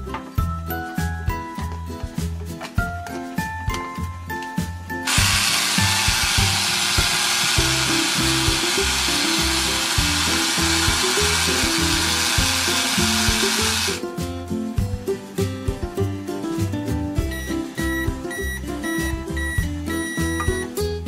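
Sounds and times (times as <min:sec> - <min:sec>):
background music: 0:00.0 - 0:21.0
toy blender whirring: 0:05.0 - 0:14.0.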